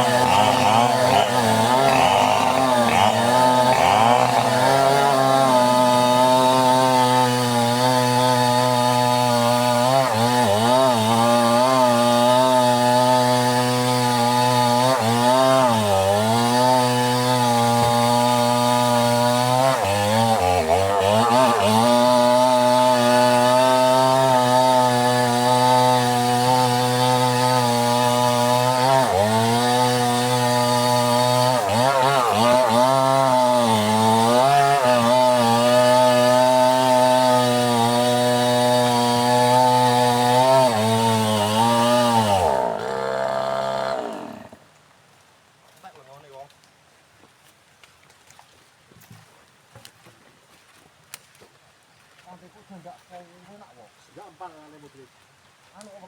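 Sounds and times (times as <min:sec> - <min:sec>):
chainsaw cutting wood: 0:00.0 - 0:44.7.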